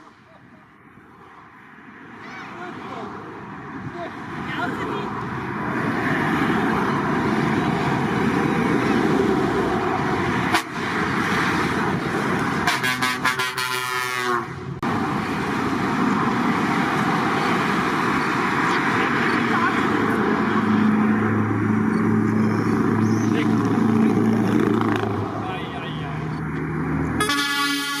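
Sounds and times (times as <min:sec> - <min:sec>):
heavy trucks passing: 0:00.0 - 0:28.0
truck horn blowing: 0:10.4 - 0:10.8, 0:12.6 - 0:14.6, 0:27.2 - 0:28.0.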